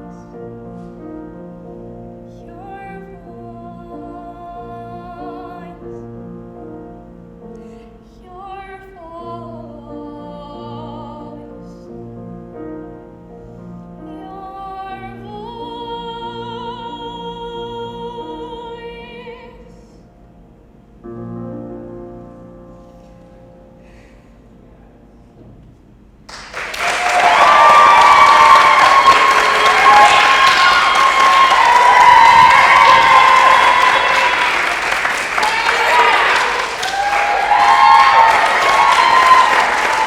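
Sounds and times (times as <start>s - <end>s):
piano accompaniment: 0.0s - 40.0s
woman singing a ballad: 2.4s - 6.0s, 8.0s - 11.8s, 14.0s - 20.0s.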